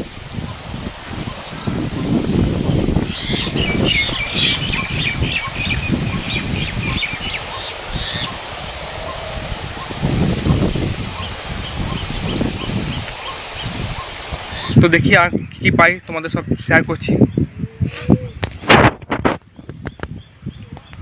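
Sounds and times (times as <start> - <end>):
bird chirping: 1.2 - 9.2.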